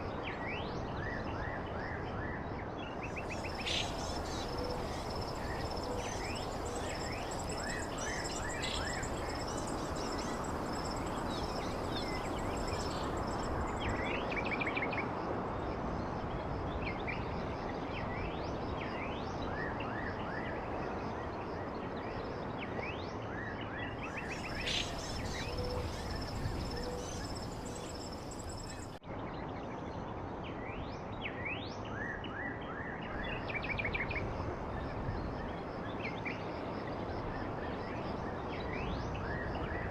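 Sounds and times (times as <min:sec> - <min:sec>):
birds chirping: 0:03.1 - 0:14.0, 0:24.2 - 0:29.0
steady rushing background noise: 0:03.1 - 0:14.3, 0:24.2 - 0:29.0
continuous high-pitched trill: 0:03.2 - 0:14.0.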